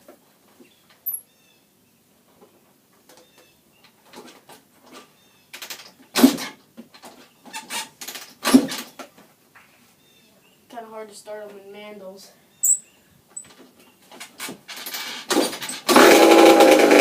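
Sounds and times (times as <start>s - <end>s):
dirt bike kick-start thuds: 4.1s - 9.1s, 14.1s - 17.0s
faint bird chirps: 12.3s - 14.0s.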